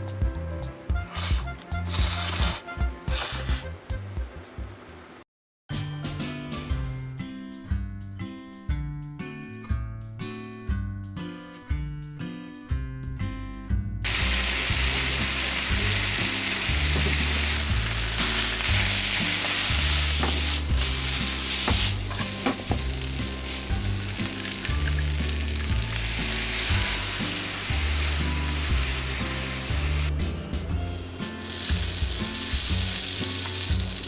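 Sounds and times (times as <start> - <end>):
noodles sizzling in a pan: 1.1 - 3.6, 14.1 - 30.1, 31.3 - 34.0.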